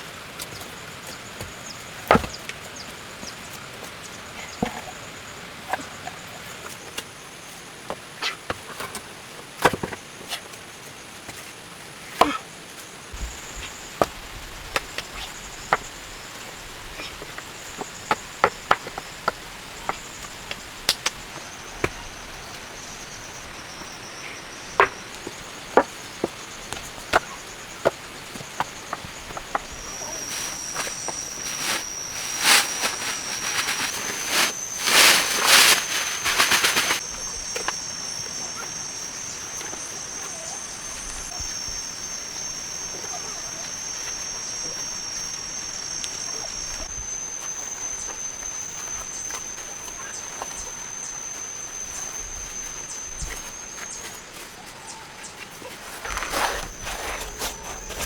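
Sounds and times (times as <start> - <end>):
insect trilling: 13.1 - 54.2.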